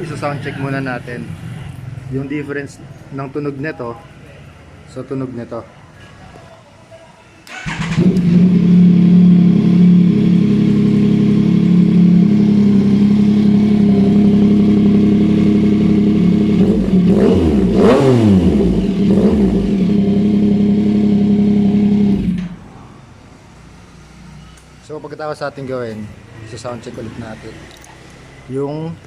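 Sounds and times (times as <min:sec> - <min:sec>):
motorcycle engine idling and revving: 0:07.5 - 0:22.8.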